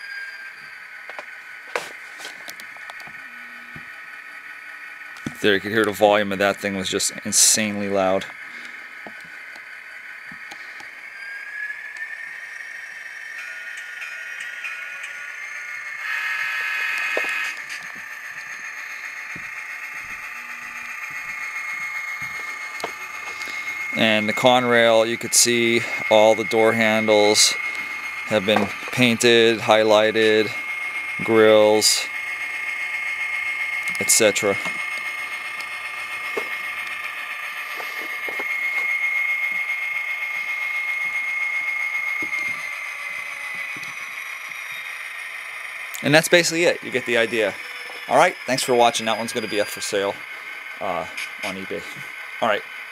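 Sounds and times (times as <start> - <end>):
high whine: 0.0 - 52.9
diesel engine hum from speaker: 5.2 - 9.3, 22.3 - 38.8.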